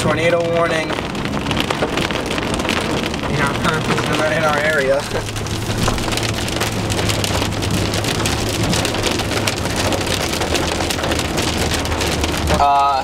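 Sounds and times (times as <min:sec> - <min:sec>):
rain pattering on car roof: 0:00.0 - 0:13.0.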